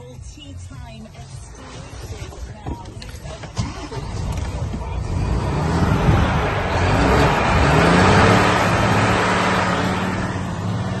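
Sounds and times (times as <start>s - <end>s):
truck diesel engine revving: 3.4s - 11.0s.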